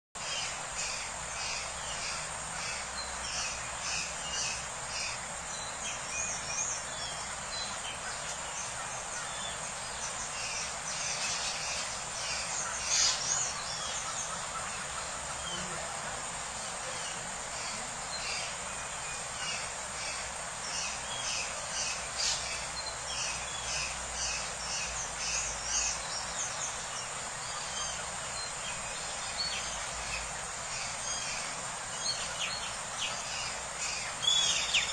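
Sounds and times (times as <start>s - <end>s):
birds chirping: 0.2s - 34.9s
steady background hiss: 0.2s - 34.9s.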